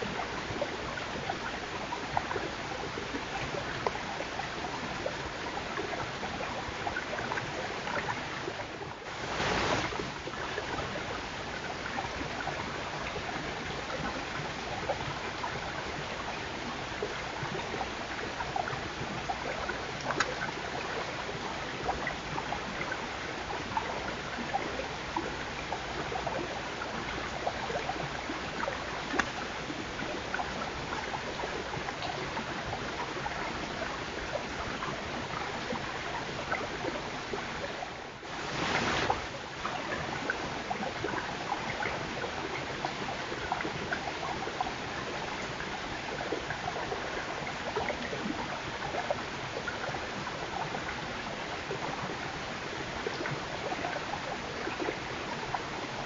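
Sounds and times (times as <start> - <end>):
steady outdoor hiss: 0.0 - 56.0
small clicks and crackles: 19.4 - 21.2, 27.1 - 32.4.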